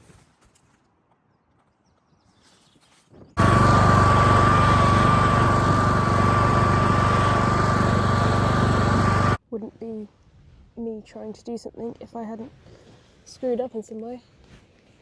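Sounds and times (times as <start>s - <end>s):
lawn mower engine running: 3.4s - 9.4s.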